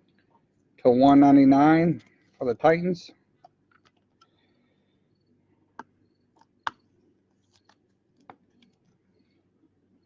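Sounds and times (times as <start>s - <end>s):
faint room hum: 0.0s - 10.0s
cards and plastic holders clicking: 3.4s - 4.4s, 5.8s - 8.9s.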